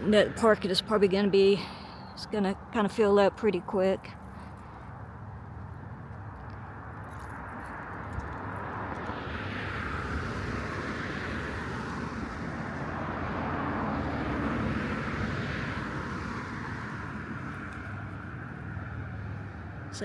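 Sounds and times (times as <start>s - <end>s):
vehicle passing: 4.2s - 20.0s.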